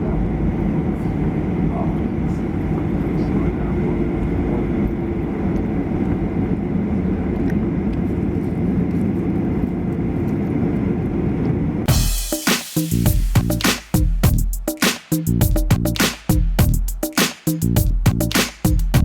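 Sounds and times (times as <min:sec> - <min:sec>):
airplane cabin engine rumble: 0:00.0 - 0:12.0
cabin air hum: 0:00.0 - 0:12.2
music with a beat: 0:11.9 - 0:19.0.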